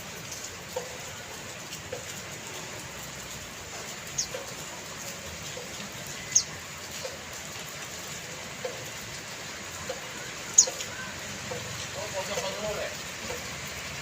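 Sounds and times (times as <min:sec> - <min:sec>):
rain falling: 0:00.0 - 0:14.0
bird chirps: 0:06.2 - 0:06.6, 0:10.5 - 0:11.1.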